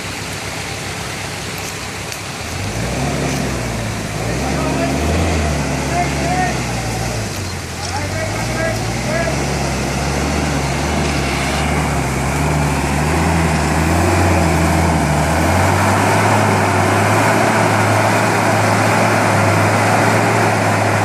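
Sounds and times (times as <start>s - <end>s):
off-road vehicle engine running: 0.0s - 21.0s
loud noisy wash: 8.0s - 21.0s.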